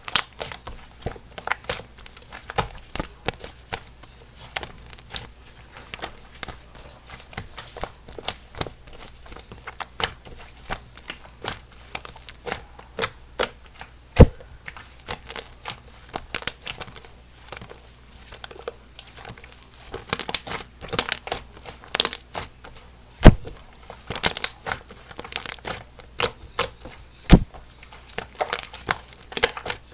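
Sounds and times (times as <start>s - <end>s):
slime squished by hand: 0.0s - 29.9s
loud slime pops: 23.2s - 23.5s.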